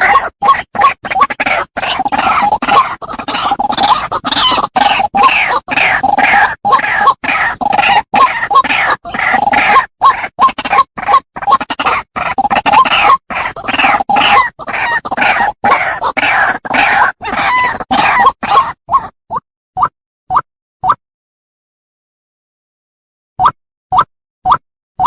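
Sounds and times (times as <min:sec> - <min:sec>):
waterhen calling: 0:00.0 - 0:19.1.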